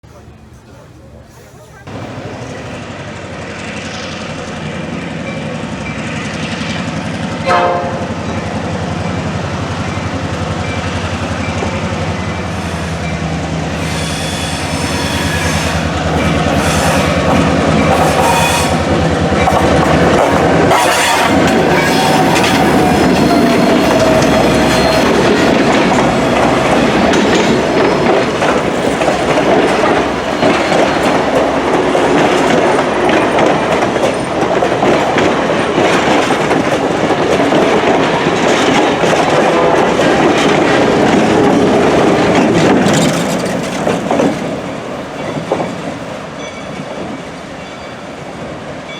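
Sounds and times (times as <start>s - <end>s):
train passing: 0.0s - 48.9s
train signal horn blast: 7.4s - 8.2s, 13.7s - 18.9s, 20.7s - 25.2s
wheels clicking over rail joints: 14.7s - 47.2s.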